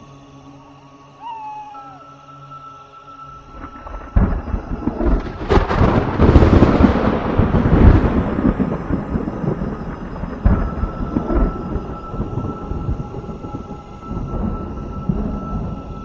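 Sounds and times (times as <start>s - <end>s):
rolling thunder rumble: 3.4s - 16.0s
thunder crack: 3.5s - 16.0s.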